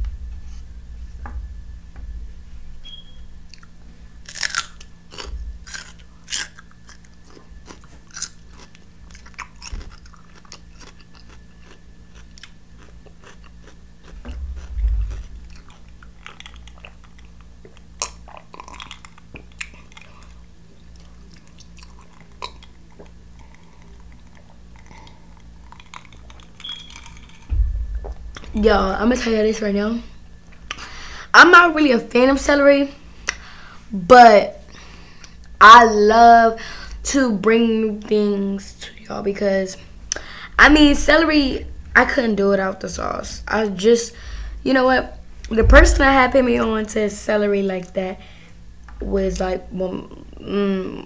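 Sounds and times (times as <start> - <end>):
chewing celery crunching: 3.5 - 27.6
dull thump: 14.2 - 15.5, 27.5 - 29.7, 45.5 - 47.2.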